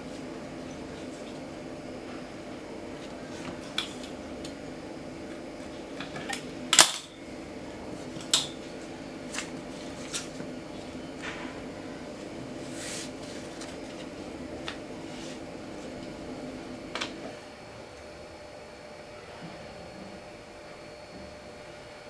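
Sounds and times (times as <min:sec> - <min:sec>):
utensils and dishes clinking: 0:06.0 - 0:07.2.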